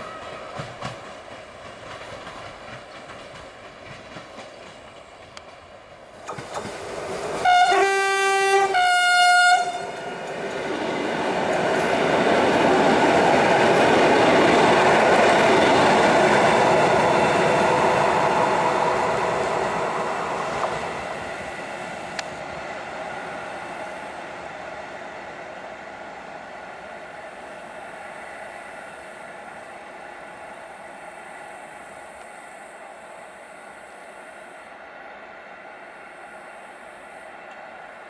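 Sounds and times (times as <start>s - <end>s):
train wheels rumbling on rail: 0.0s - 38.0s
train horn blasts: 7.4s - 10.0s.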